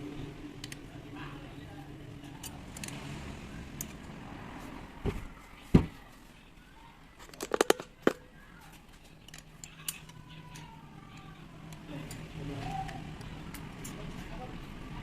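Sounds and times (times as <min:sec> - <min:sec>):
tools and parts knocking: 0:07.3 - 0:08.2.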